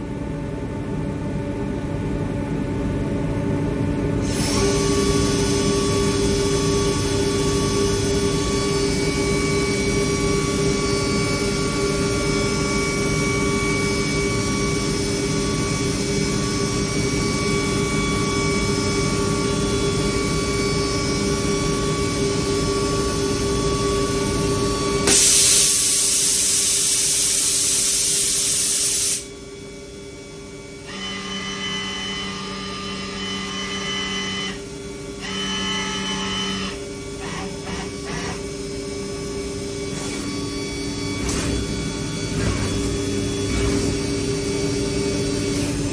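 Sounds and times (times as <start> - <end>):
cnc machine whine: 0.0 - 45.9
low machine hum: 29.2 - 45.9.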